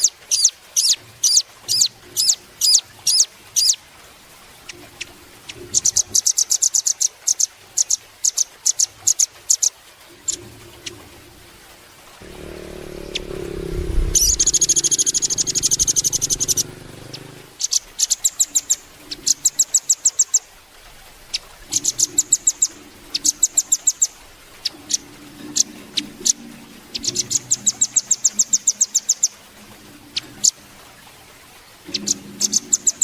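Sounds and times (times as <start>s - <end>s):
nuthatch trilling song: 0.0s - 3.8s, 12.7s - 20.4s, 21.7s - 25.0s, 25.6s - 29.4s, 31.9s - 33.0s.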